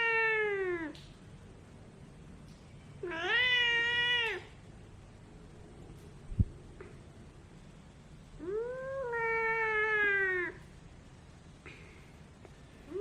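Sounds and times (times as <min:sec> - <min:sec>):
cat meowing: 0:00.0 - 0:01.0, 0:03.0 - 0:04.6, 0:08.4 - 0:10.7.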